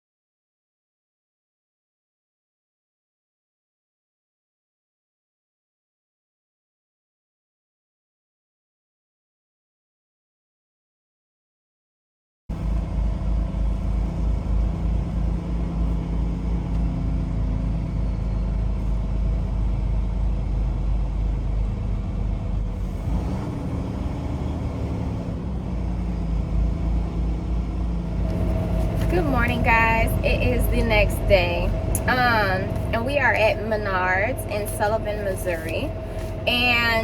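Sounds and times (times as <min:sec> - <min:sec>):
diesel truck engine rumbling: 0:12.5 - 0:37.0.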